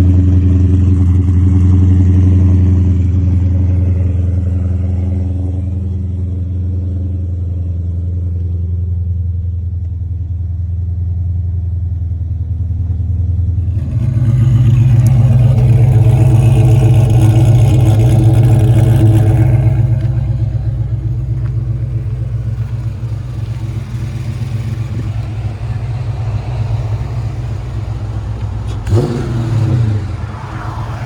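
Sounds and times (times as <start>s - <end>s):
car engine idling and revving: 0.0s - 31.0s.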